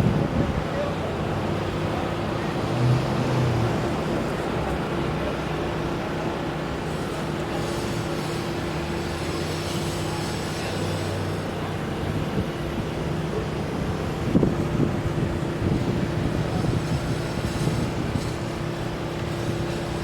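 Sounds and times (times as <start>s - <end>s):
mechanical running hum: 6.6s - 20.0s.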